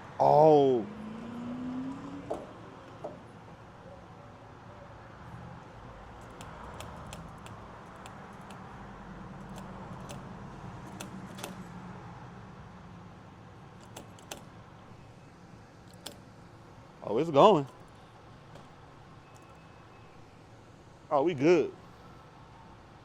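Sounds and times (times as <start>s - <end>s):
metallic clicks of fuel nozzle: 6.2s - 8.6s, 9.4s - 10.3s, 13.8s - 14.5s, 15.9s - 16.2s.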